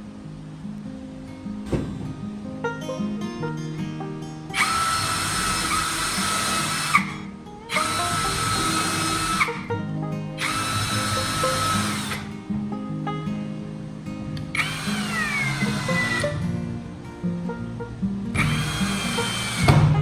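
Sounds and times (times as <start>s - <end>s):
guitar background music: 0.0s - 20.0s
power tool whining: 4.5s - 9.8s, 10.4s - 12.4s, 14.4s - 16.7s, 18.3s - 20.0s.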